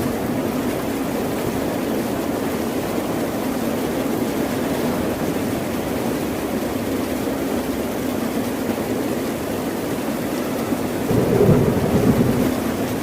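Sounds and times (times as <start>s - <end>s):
ocean surf rushing: 11.0s - 13.0s.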